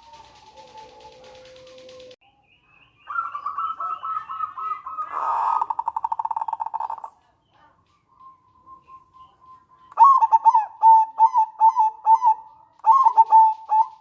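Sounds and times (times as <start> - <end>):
dove cooing and rattling: 0.0 - 2.2.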